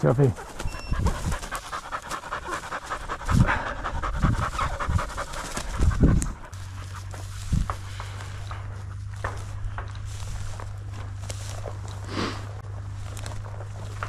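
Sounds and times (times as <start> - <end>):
dog panting rapidly: 0.0 - 9.1.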